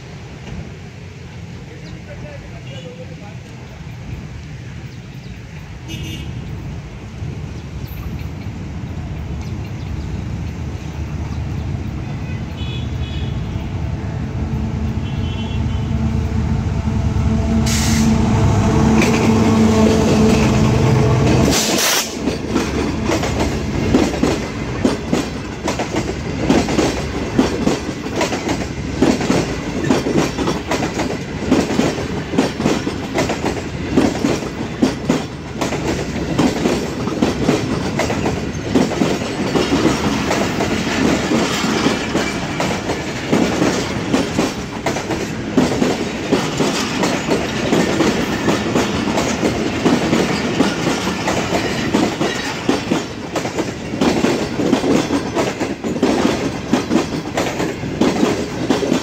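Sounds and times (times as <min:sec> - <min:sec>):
train rumble: 0:00.0 - 0:59.0
train wheels clattering over rail joints: 0:17.7 - 0:59.0.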